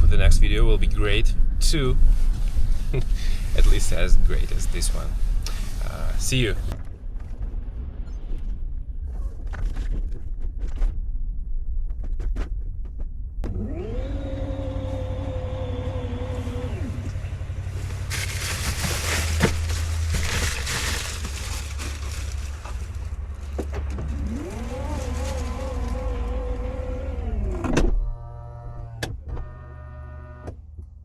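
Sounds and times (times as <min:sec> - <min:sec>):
car engine and road rumble: 0:00.0 - 0:10.6, 0:12.8 - 0:31.0
small electric motor whining: 0:24.2 - 0:27.5.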